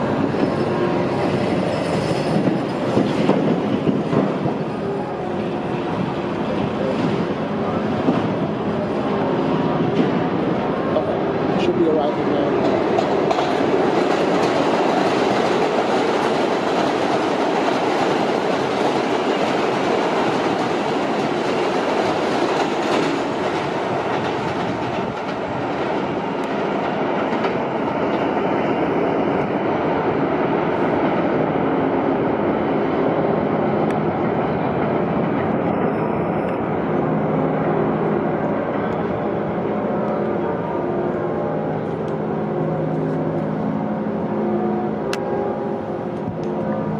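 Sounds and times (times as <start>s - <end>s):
subway train rumbling past: 0.0s - 46.9s
wheels clacking over rail joints: 12.6s - 28.3s.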